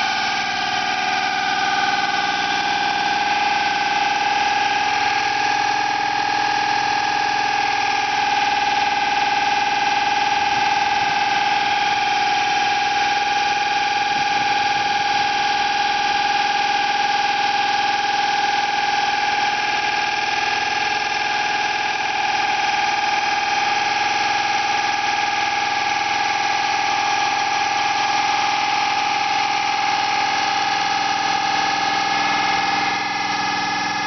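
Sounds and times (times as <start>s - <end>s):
hydraulic system whining: 0.0s - 13.0s, 25.0s - 34.0s.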